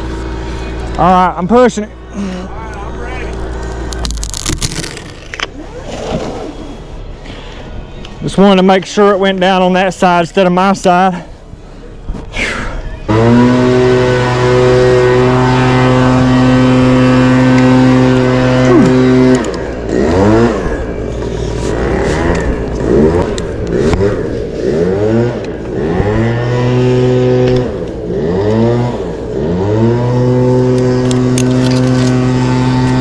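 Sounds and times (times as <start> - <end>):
chainsaw idling and revving: 13.1 - 33.0.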